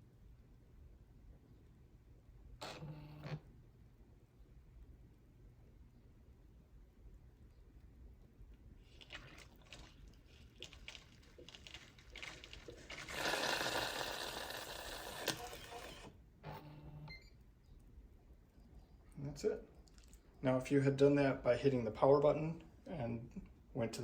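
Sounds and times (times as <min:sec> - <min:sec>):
water and steam sputtering: 0:08.9 - 0:15.9.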